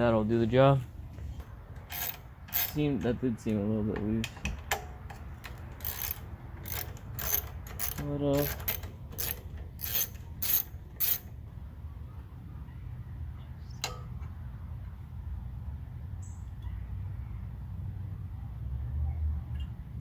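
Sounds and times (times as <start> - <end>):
metallic clicks of hand tools: 1.8 - 2.8, 4.0 - 11.2.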